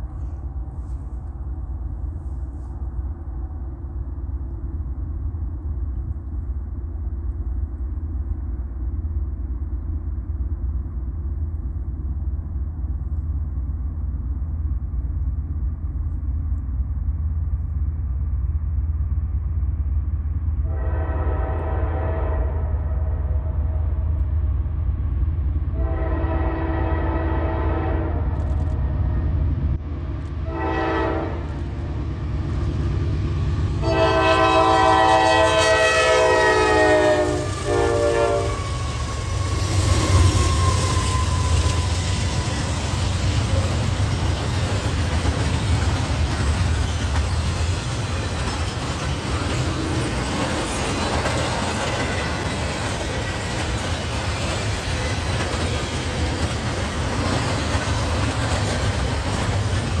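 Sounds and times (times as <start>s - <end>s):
locomotive engine rumble: 0.0s - 60.0s
locomotive air horn blasts: 20.7s - 23.0s, 25.8s - 28.2s, 30.4s - 31.5s, 33.8s - 38.8s
container cars rolling by: 38.4s - 60.0s.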